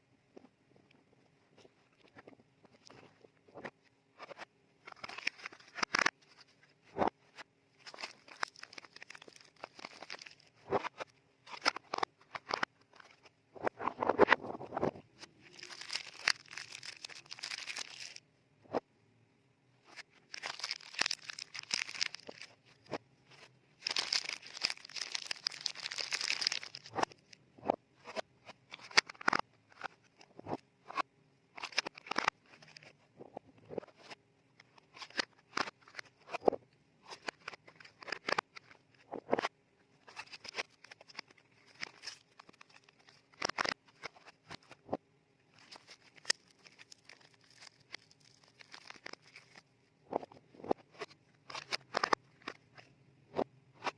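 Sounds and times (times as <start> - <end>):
paper wrappers crinkling: 4.9 - 6.4, 7.8 - 13.2, 15.4 - 18.2, 19.9 - 27.3, 45.5 - 49.6.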